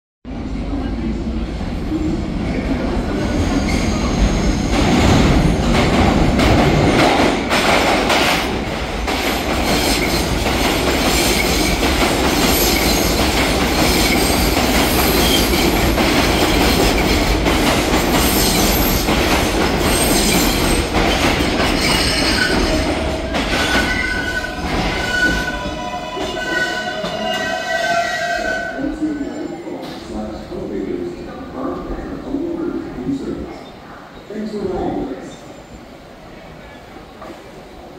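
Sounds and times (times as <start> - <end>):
train wheels rumbling on rails: 2.4 - 27.8.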